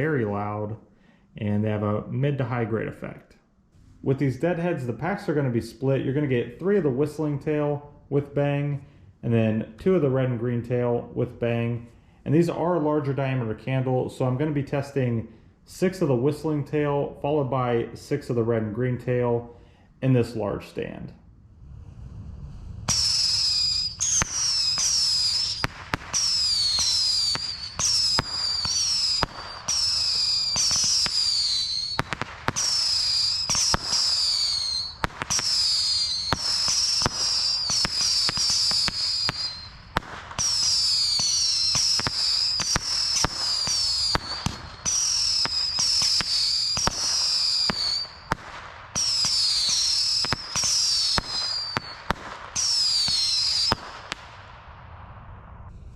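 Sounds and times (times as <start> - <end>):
whistling fireworks: 21.7 - 55.9
firework bangs and cracks: 22.8 - 55.9.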